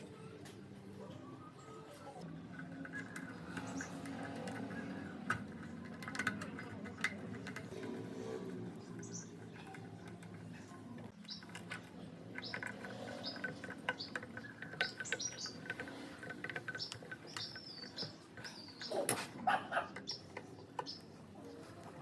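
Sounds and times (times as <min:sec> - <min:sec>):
small birds chirping: 0:02.7 - 0:06.0, 0:06.9 - 0:22.0.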